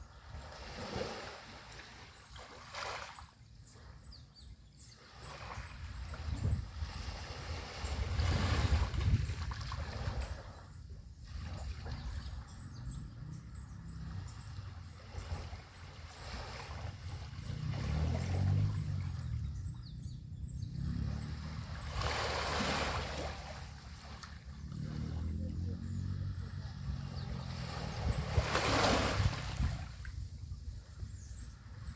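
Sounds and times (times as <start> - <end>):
small waves washing onto beach: 0.0 - 4.0, 4.9 - 12.5, 13.7 - 19.4, 21.0 - 25.4, 26.0 - 30.3.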